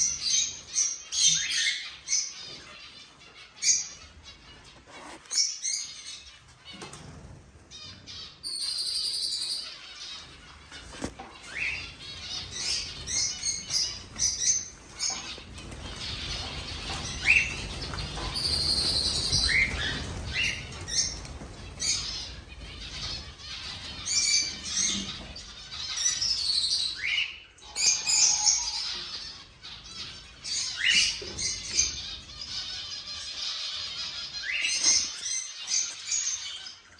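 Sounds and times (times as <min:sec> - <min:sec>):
cockatiels chirping and calling: 0:00.0 - 0:07.0, 0:07.7 - 0:36.9
wings flapping: 0:10.1 - 0:26.6.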